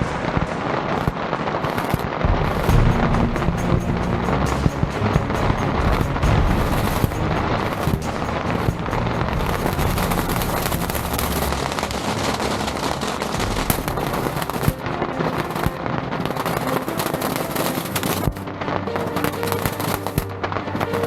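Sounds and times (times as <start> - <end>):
fireworks crackling: 0.0 - 21.0
low rumble: 2.2 - 15.9.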